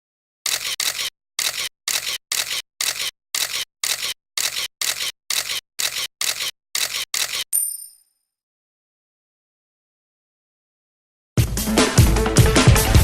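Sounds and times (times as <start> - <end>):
camera shutter clicks: 0.5 - 7.5.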